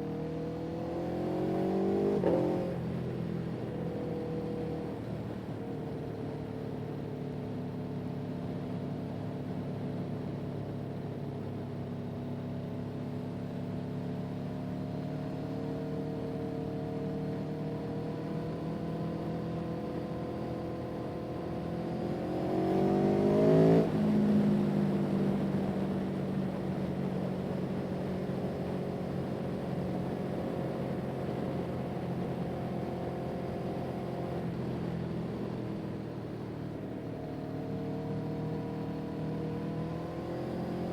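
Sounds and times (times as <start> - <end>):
motor vehicle engine revving: 22.0 - 24.0.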